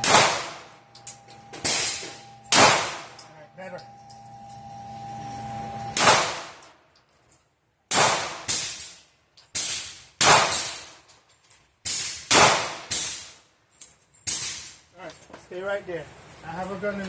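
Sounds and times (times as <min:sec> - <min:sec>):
handgun shots: 0:00.0 - 0:00.7, 0:01.6 - 0:03.2, 0:06.0 - 0:06.6, 0:07.9 - 0:08.9, 0:09.6 - 0:10.8, 0:11.9 - 0:13.3.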